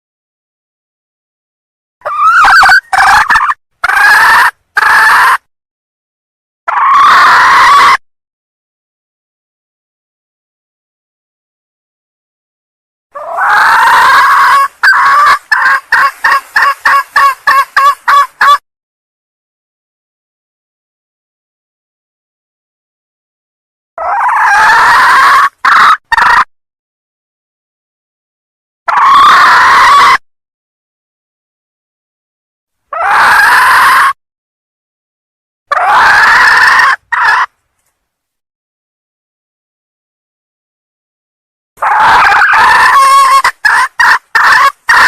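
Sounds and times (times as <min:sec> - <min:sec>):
junglefowl hen calling and clucking: 0:02.0 - 0:05.5, 0:06.7 - 0:08.0, 0:13.1 - 0:18.6, 0:24.0 - 0:26.5, 0:28.9 - 0:30.2, 0:32.9 - 0:34.2, 0:35.7 - 0:37.6, 0:41.8 - 0:45.0.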